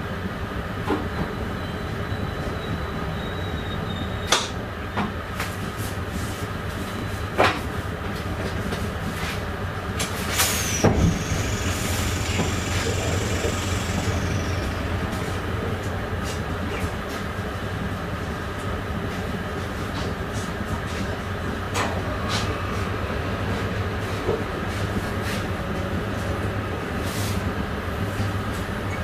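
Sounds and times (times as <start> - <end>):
train rumble: 0.0 - 29.0
high wheel squeals: 1.1 - 5.1, 10.3 - 17.2.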